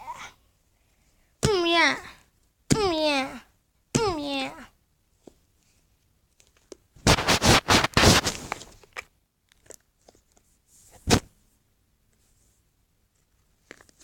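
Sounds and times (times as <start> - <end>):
scraping and rustling handling: 5.2 - 11.2, 12.1 - 14.0
sharp scrape: 7.0 - 8.7.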